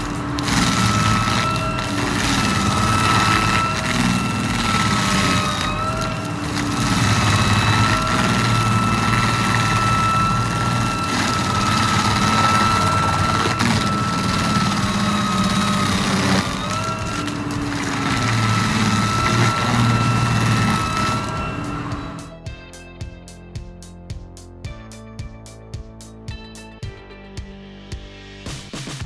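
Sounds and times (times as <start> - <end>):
heavy machine engine whining: 0.0 - 22.4.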